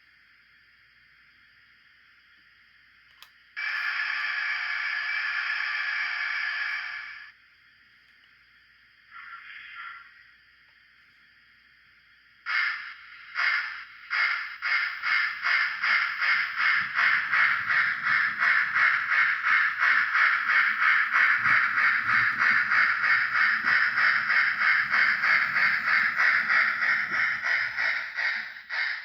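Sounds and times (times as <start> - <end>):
steam exhaust chuffs from speaker: 12.5 - 29.0.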